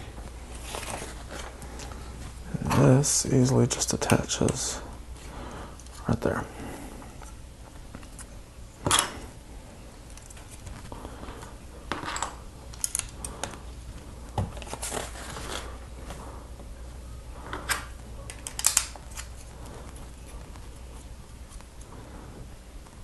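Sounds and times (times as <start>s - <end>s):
faint low hum: 0.0s - 23.0s
plastic rustling and scraping: 0.4s - 3.0s, 13.3s - 16.4s.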